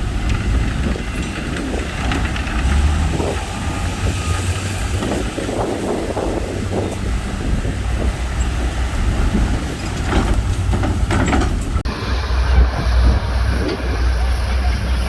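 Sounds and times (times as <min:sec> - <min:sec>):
metal clanks and rattles: 0:00.0 - 0:11.9
heavy machinery diesel engine rumble: 0:00.0 - 0:15.0.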